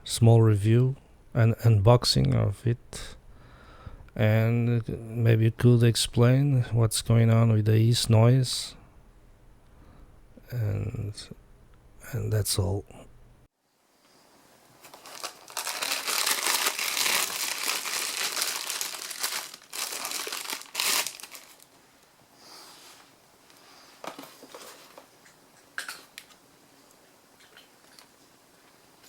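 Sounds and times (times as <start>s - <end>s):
crinkling handling noise: 14.6s - 22.1s, 22.8s - 26.4s.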